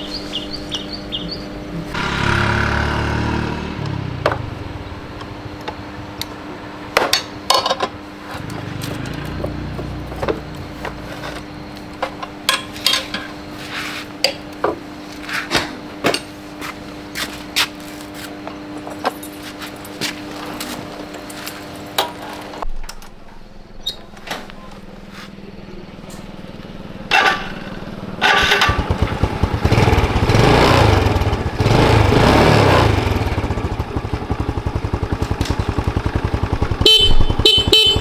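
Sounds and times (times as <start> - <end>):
vehicle passing: 0.0 - 6.9, 8.3 - 12.0
steady hum: 0.0 - 7.5
metal tools clinking: 7.1 - 13.6, 18.7 - 23.1.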